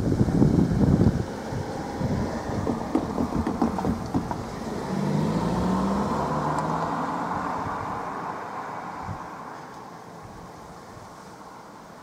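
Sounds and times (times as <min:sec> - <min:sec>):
train wheels on rails: 0:02.3 - 0:04.8.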